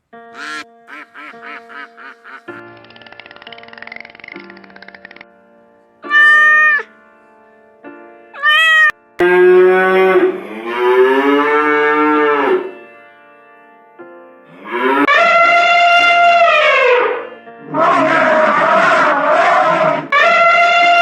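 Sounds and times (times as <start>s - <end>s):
soft background music: 0.0s - 15.4s
drawn-out falling animal call: 0.3s - 5.4s, 6.0s - 6.9s
cat meowing: 6.0s - 6.9s, 8.4s - 9.0s.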